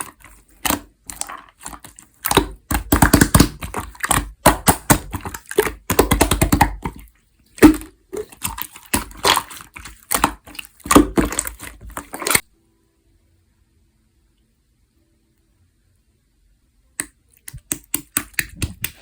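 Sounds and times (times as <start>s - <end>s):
slime squished by hand: 0.0s - 12.4s.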